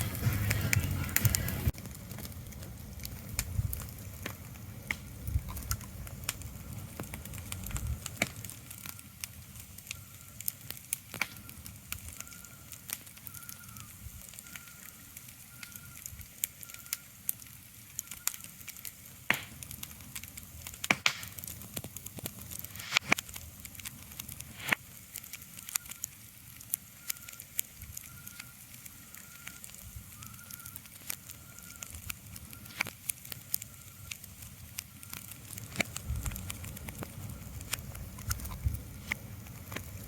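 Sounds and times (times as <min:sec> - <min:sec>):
low rumble: 0:00.0 - 0:08.2
sharp crackles and clicks: 0:00.0 - 0:40.0.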